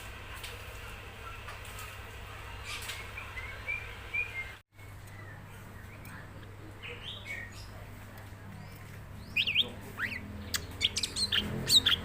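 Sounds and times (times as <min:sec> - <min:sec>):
bird chirping and whistling: 0:09.3 - 0:12.0.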